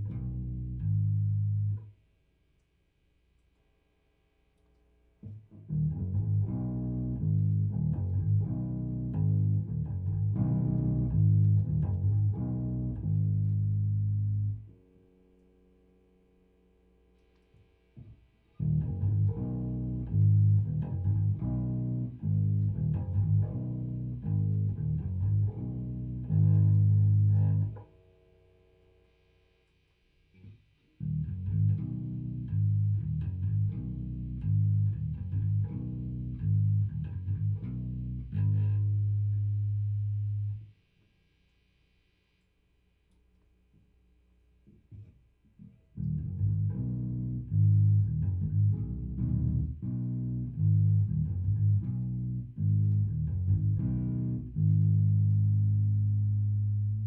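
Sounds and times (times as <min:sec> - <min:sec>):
electric bass plucked riffs: 0:00.0 - 0:01.9, 0:05.2 - 0:14.9, 0:18.0 - 0:27.9, 0:31.0 - 0:40.7, 0:45.9 - 0:57.0.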